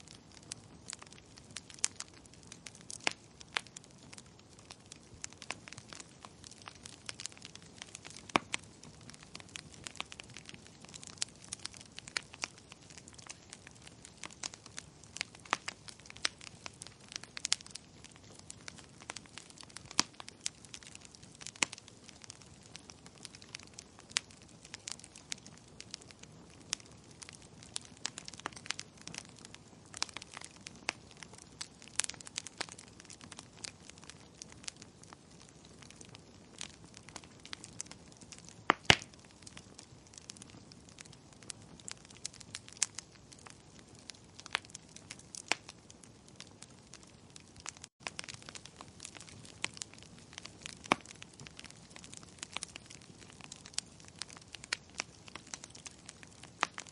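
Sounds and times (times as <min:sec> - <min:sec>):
wood fire crackling: 0:00.0 - 0:56.9.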